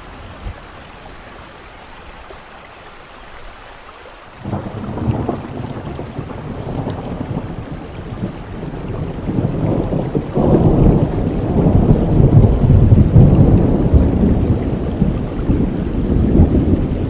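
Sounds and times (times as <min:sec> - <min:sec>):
steady rain: 0:00.0 - 0:17.0
thunder rumble: 0:04.4 - 0:17.0.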